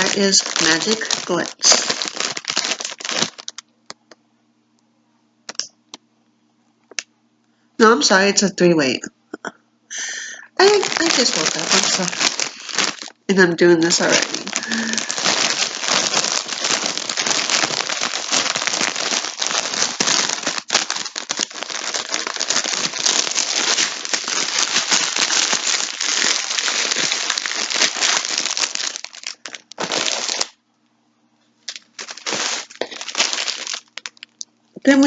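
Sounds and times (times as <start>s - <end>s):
plastic packaging crinkling: 0.0s - 4.2s, 10.6s - 30.6s, 31.6s - 35.0s.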